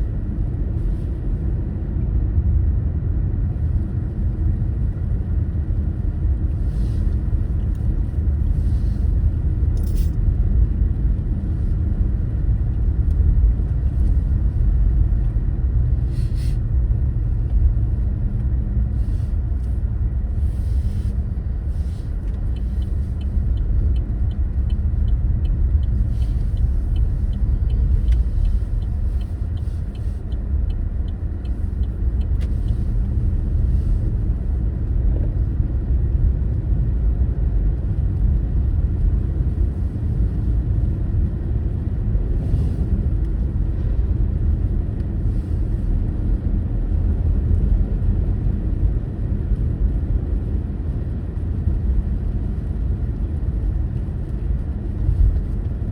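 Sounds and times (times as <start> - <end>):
car engine and road noise: 0.0 - 55.9
faint regular ticking: 22.2 - 32.9.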